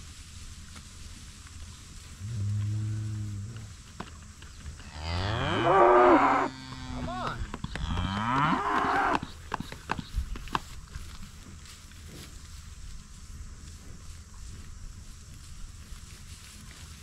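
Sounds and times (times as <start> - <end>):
cows mooing: 2.2 - 3.7, 4.9 - 9.3.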